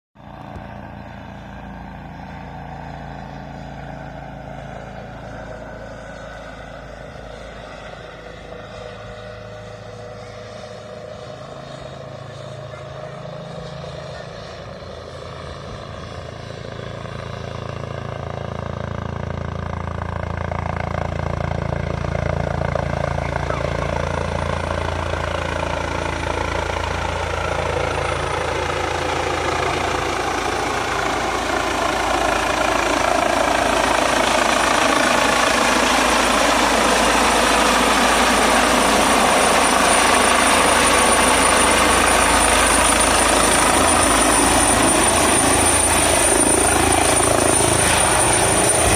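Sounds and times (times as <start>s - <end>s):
helicopter rotor and turbine: 0.2s - 48.9s
high whine: 43.0s - 48.9s.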